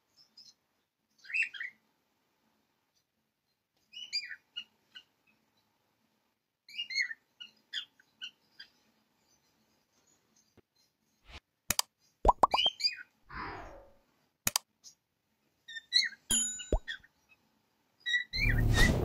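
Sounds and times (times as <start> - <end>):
bird-like falling chirps: 12.3 - 13.9.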